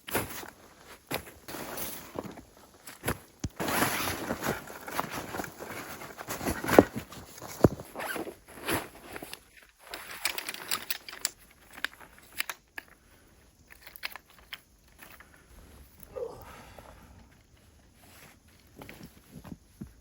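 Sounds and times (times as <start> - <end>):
footsteps crunching in snow: 0.1 - 9.1.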